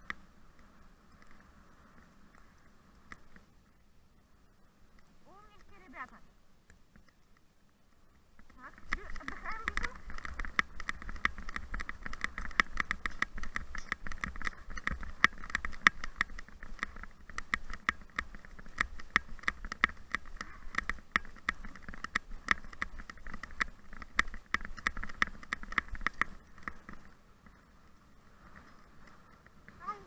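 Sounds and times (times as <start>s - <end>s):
low wind rumble: 0.0s - 30.0s.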